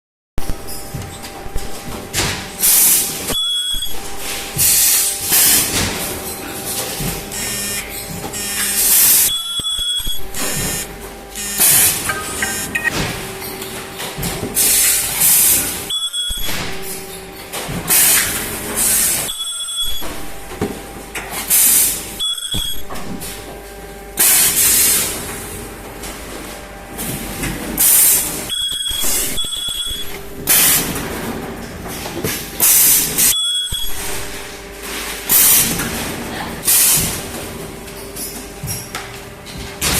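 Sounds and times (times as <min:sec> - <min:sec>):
welding machine hissing: 0:02.6 - 0:03.4, 0:07.4 - 0:09.3, 0:10.2 - 0:12.8, 0:14.6 - 0:15.8, 0:27.8 - 0:30.9, 0:32.6 - 0:34.2
brief high tone: 0:11.4 - 0:12.9.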